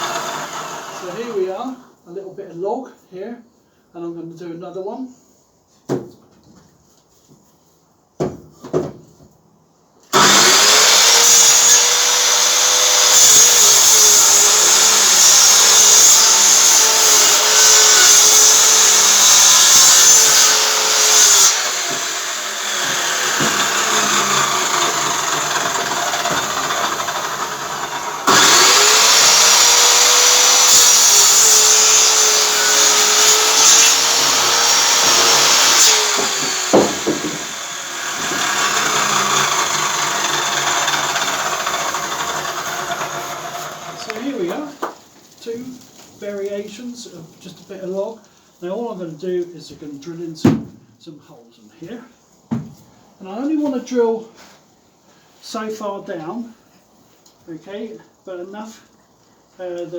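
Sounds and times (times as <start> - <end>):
electric saw cutting log: 0.0 - 1.4, 10.1 - 44.5.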